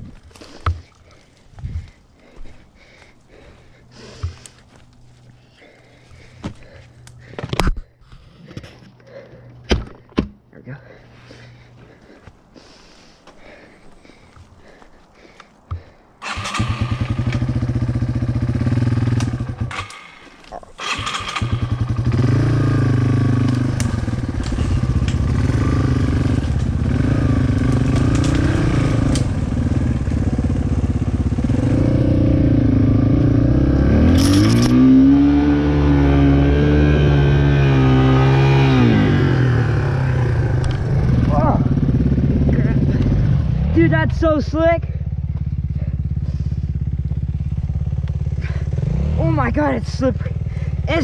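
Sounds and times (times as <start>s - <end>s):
dirt bike engine revving: 16.2s - 51.0s.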